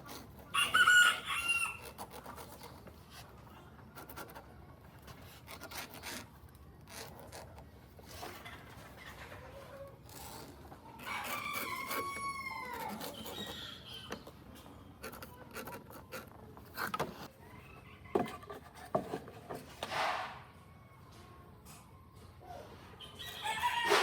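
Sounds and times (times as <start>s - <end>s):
rooster crowing: 0.5s - 1.8s, 11.0s - 13.0s, 23.2s - 24.0s.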